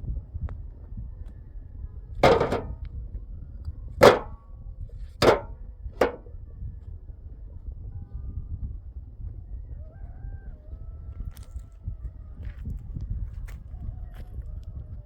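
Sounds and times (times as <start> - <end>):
low steady rumble: 0.0 - 7.5
sharp ringing knocks: 2.2 - 2.8, 4.0 - 4.4, 5.2 - 6.2.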